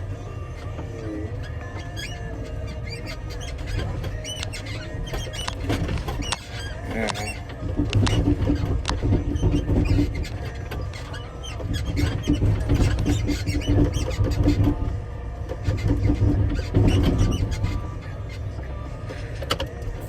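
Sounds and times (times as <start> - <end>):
front loader engine revving: 0.0 - 20.0
clicks and rattles: 2.8 - 18.4.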